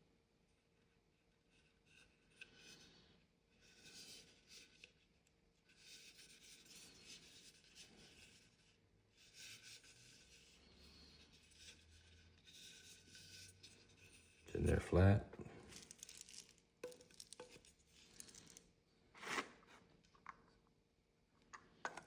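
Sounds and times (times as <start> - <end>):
plastic parts rubbing and scraping: 15.6 - 18.6.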